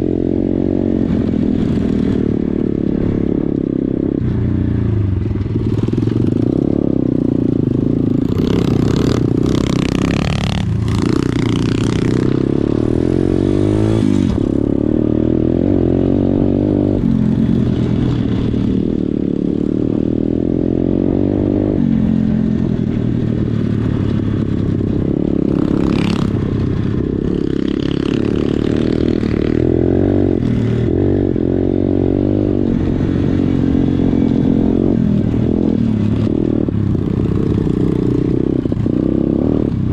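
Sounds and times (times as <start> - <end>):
motorbike engine revving: 5.4 - 39.9.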